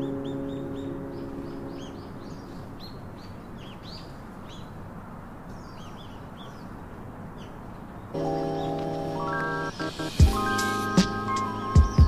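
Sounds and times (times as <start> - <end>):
small birds chirping: 0.0 - 12.0
steady background hiss: 0.0 - 12.0.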